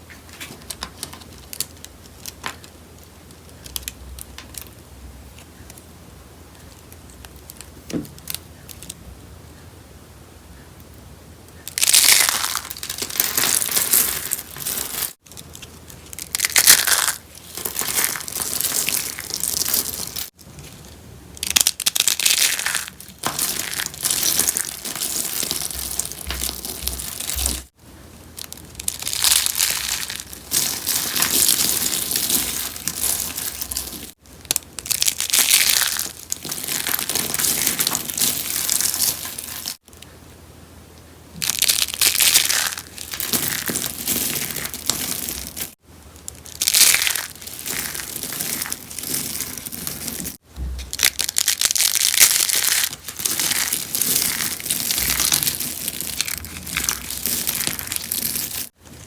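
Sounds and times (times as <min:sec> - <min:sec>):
soap crunching: 0:15.1 - 0:20.4, 0:28.5 - 0:39.8, 0:41.4 - 0:58.8.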